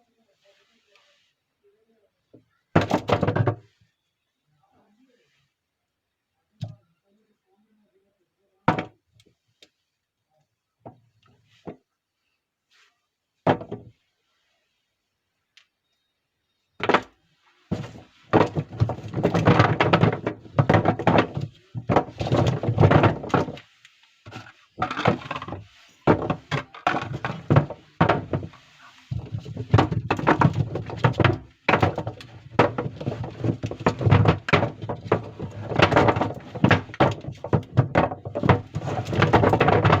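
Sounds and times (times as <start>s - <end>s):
soap bars thunking: 16.8s - 23.6s, 24.2s - 40.0s.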